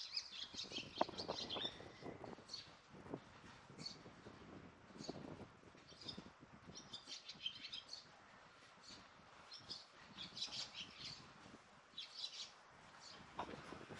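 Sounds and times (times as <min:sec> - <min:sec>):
small birds chirping: 0:00.0 - 0:02.8, 0:05.0 - 0:08.1, 0:08.8 - 0:11.3, 0:11.9 - 0:13.6.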